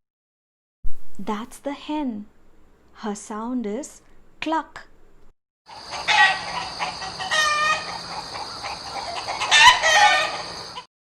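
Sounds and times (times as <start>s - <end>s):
hen clucking: 5.7s - 10.9s.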